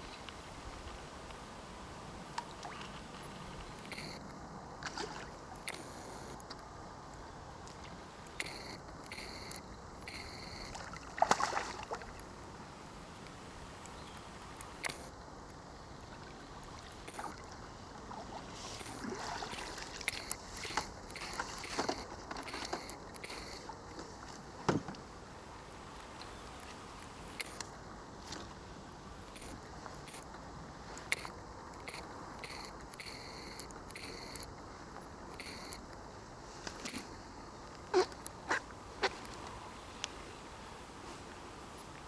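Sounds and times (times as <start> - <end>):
water sloshing and splashing: 4.8 - 5.6, 10.6 - 12.2, 16.0 - 24.9.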